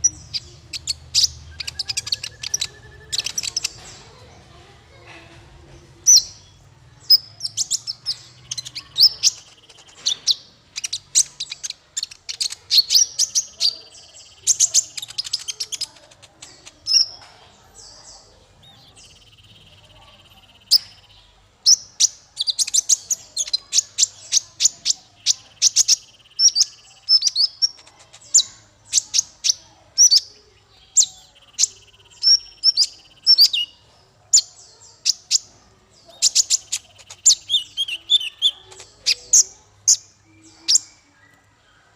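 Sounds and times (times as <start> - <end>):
buzzy bird trill: 0.0 - 4.2
songbird chips and clicks: 0.0 - 4.3, 6.1 - 17.9, 18.8 - 41.6.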